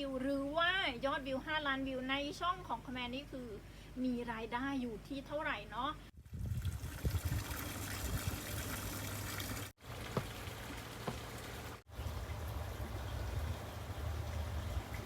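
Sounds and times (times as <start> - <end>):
water trickling: 6.4 - 15.0.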